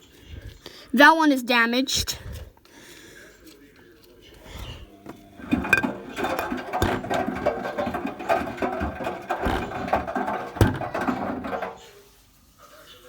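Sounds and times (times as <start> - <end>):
bottles tumbling in washing machine: 4.6 - 12.0.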